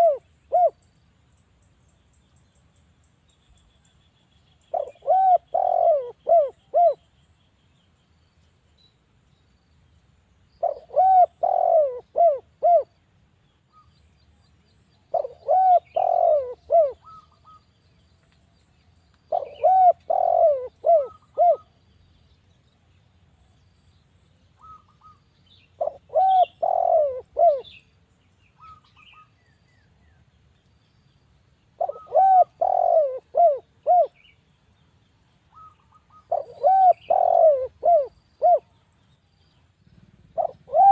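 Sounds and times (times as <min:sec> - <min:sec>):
dove cooing: 0:00.0 - 0:00.8, 0:04.7 - 0:07.0, 0:10.6 - 0:13.0, 0:15.1 - 0:17.6, 0:19.3 - 0:21.8, 0:24.6 - 0:25.2, 0:25.8 - 0:27.8, 0:31.8 - 0:34.2, 0:35.5 - 0:38.8, 0:39.9 - 0:40.9
small birds chirping: 0:00.0 - 0:40.9.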